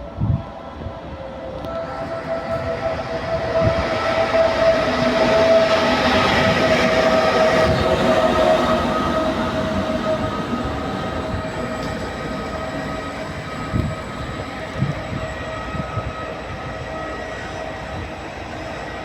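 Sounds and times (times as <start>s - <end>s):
train moving along track: 0.0s - 19.0s
train whine: 0.0s - 19.0s
train wheel clacks: 4.7s - 14.3s.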